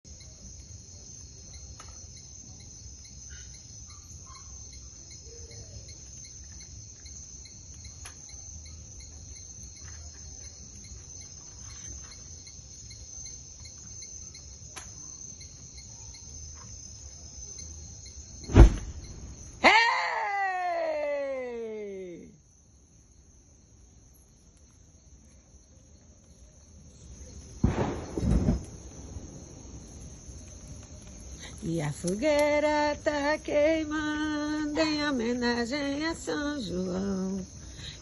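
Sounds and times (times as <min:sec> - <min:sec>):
crickets chirping: 0:00.0 - 0:38.0
faint clicks: 0:30.4 - 0:32.6.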